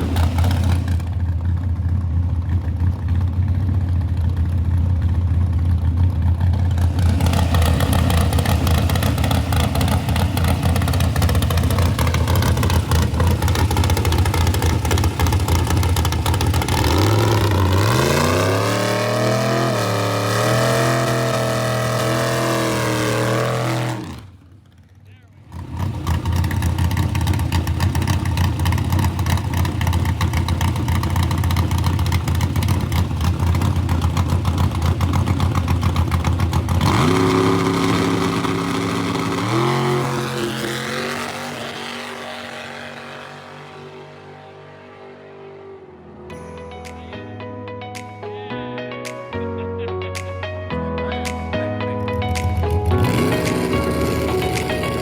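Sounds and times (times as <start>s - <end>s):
race car engine revving: 0.0s - 1.6s, 6.4s - 24.5s, 25.4s - 46.2s, 52.9s - 55.0s.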